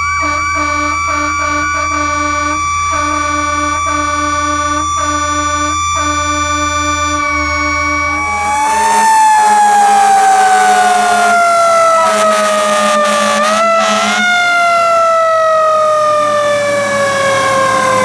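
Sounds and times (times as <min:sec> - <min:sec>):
mechanical siren winding down: 0:00.0 - 0:18.0.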